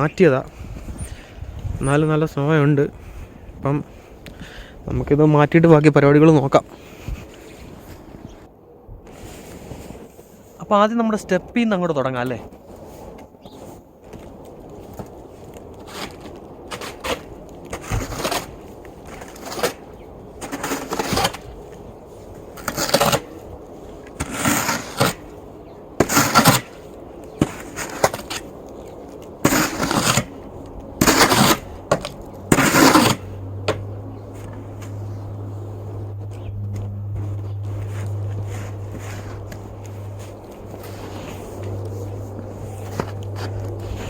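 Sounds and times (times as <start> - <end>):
snow shovel scraping: 9.1 - 10.5, 15.8 - 44.0
steady low hum: 14.3 - 44.0.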